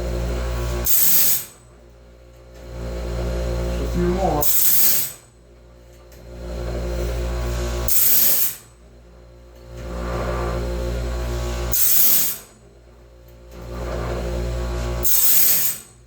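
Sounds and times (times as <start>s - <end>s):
motor hum: 0.0s - 15.9s
grinding stone hissing on steel: 0.8s - 1.6s, 3.6s - 5.3s, 7.0s - 8.7s, 9.8s - 12.5s, 13.8s - 16.0s.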